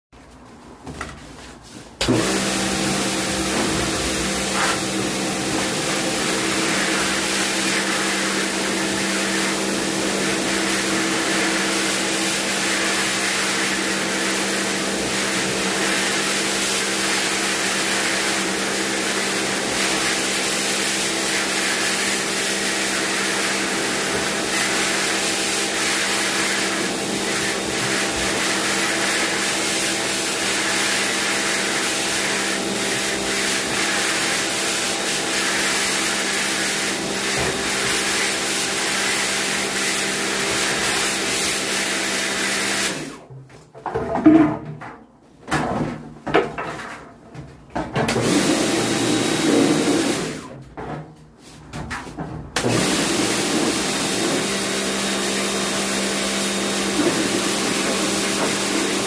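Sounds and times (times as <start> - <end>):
pressure washer motor humming: 2.0 - 43.2, 48.1 - 50.4, 52.6 - 59.0
hiss of water spray: 2.3 - 9.6.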